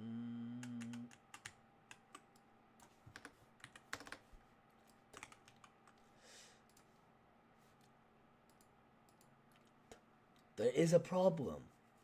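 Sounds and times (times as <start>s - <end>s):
low hum: 0.0s - 1.1s
keyboard typing: 0.6s - 2.4s, 3.1s - 4.2s, 4.8s - 6.0s.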